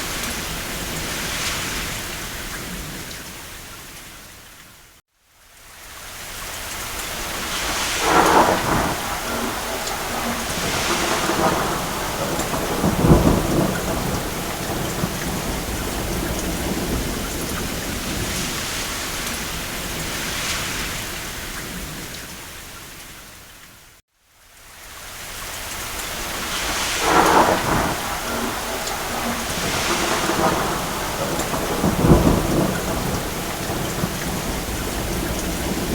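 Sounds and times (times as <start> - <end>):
steady rain: 0.0 - 35.9
distant thunder rumbling: 7.2 - 20.4, 26.2 - 35.9.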